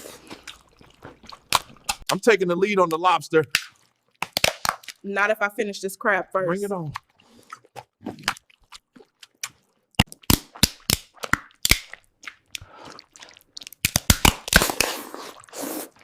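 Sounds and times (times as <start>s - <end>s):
shells cracking: 3.5s - 4.9s, 10.0s - 12.0s, 13.8s - 14.9s.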